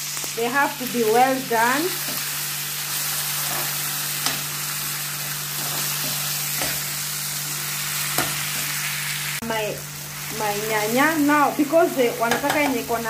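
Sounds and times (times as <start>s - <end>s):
vegetables sizzling in oil: 0.0s - 13.0s
metal spoon knocking pan: 12.2s - 12.8s.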